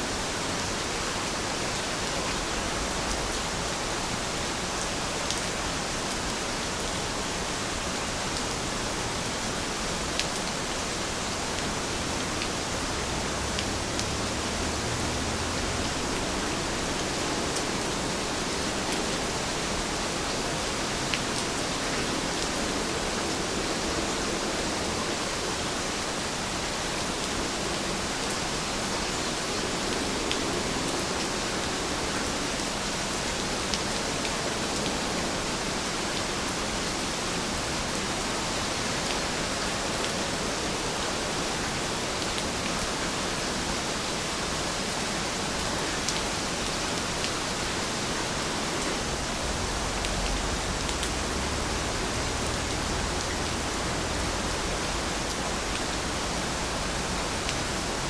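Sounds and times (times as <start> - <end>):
heavy rain falling: 0.0 - 58.0
raindrop ticks: 49.9 - 56.2.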